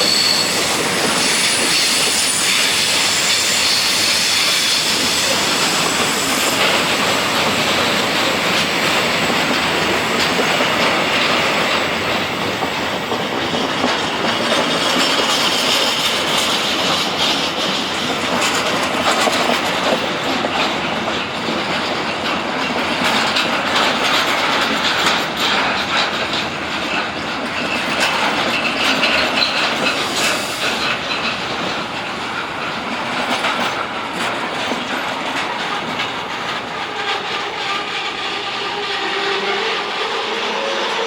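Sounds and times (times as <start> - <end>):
high squeal of wheels: 0.0 - 8.0, 13.4 - 19.2, 27.6 - 31.7
train wheels clattering: 0.0 - 41.0.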